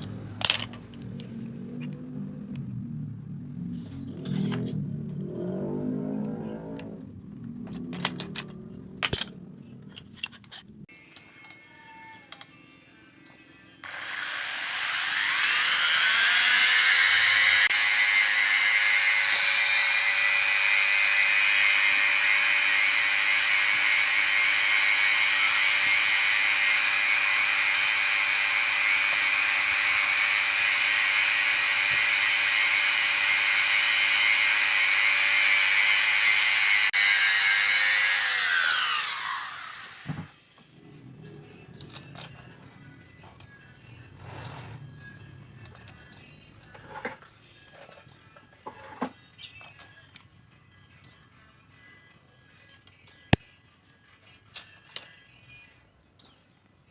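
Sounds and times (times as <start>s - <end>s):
high bird chirps: 13.2s - 13.6s
electric power tool motor: 13.8s - 40.3s.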